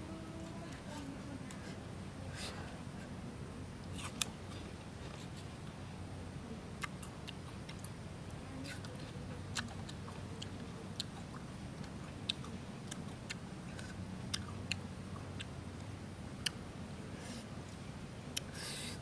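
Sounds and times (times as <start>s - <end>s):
person chewing crisp fruit: 3.8s - 5.6s, 6.8s - 8.0s, 8.7s - 15.6s.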